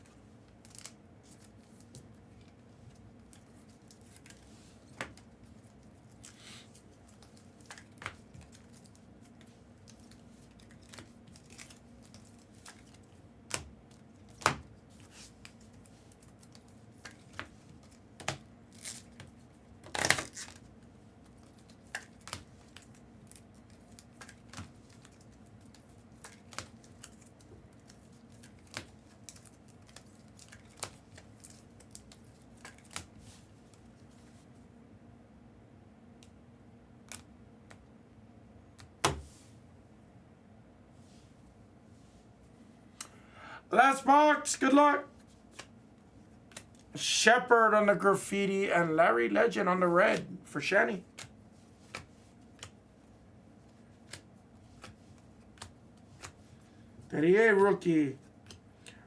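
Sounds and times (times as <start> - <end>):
card stock clicks and snaps: 21.3 - 33.1, 37.0 - 37.8, 51.1 - 52.8, 54.0 - 56.4, 58.4 - 58.6.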